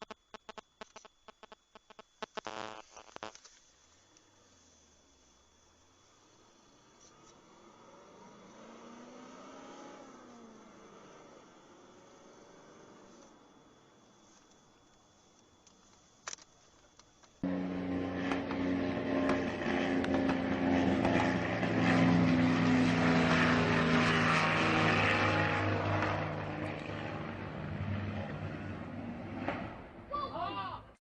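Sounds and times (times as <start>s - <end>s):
aircraft engine drone: 17.4s - 30.1s.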